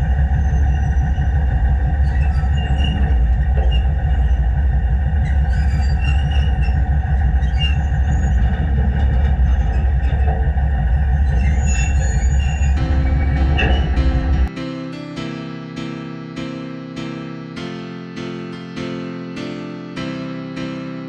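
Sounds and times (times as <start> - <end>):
train rumbling on rails: 0.0 - 14.5
high squeaks and clicks: 0.1 - 14.5.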